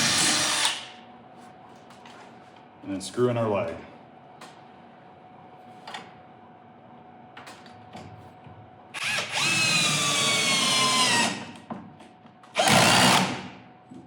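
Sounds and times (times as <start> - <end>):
power drill whining: 9.0 - 11.5, 12.6 - 13.4.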